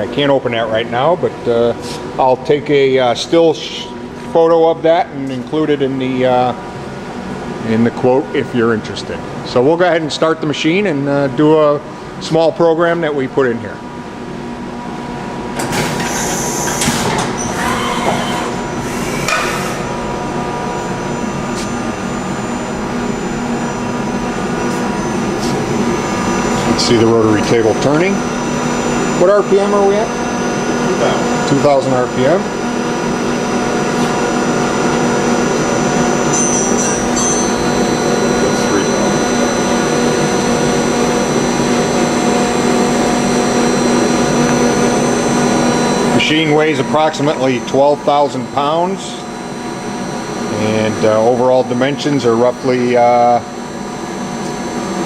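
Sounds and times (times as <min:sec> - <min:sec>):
machine hum with held tones: 0:00.0 - 0:55.0
machine whine rising and falling: 0:14.6 - 0:55.0
noisy machine bursts: 0:15.6 - 0:55.0.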